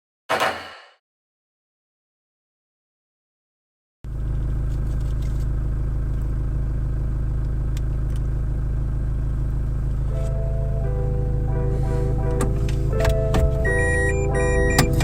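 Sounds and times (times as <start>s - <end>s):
vehicle engine rumble: 4.1s - 15.0s
held musical notes: 10.1s - 15.0s.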